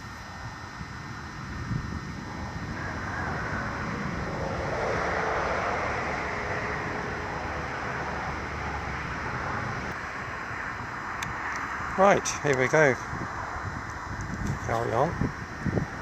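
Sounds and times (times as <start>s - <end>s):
wind on microphone: 0.0s - 16.0s
vehicle engine passing: 2.2s - 12.5s.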